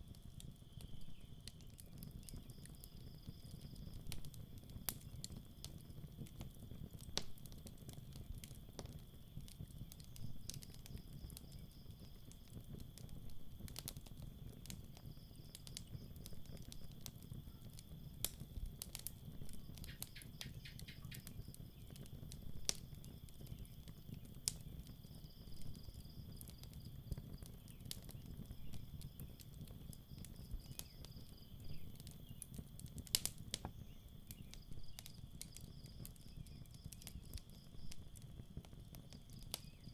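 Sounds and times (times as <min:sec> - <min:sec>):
campfire crackling and popping: 0:00.0 - 0:39.9
night insects trilling: 0:15.0 - 0:38.4.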